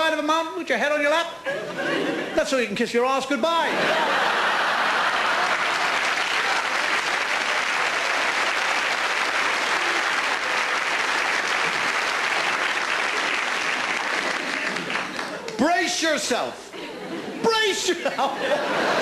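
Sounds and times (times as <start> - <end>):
audience applauding: 4.3 - 15.7.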